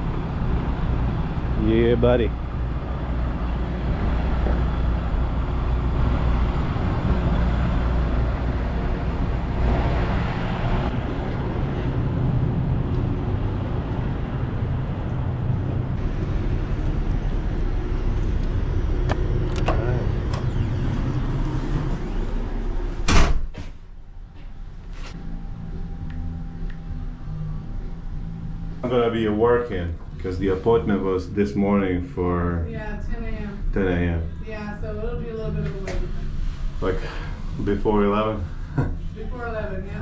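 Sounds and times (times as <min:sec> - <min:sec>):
diesel truck engine idling: 0:00.0 - 0:22.9
door slamming: 0:23.0 - 0:23.8.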